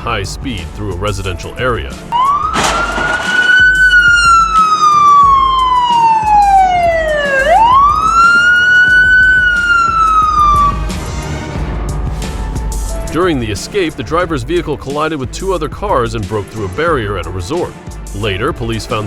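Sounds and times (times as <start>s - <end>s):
police siren wailing: 2.1s - 11.2s.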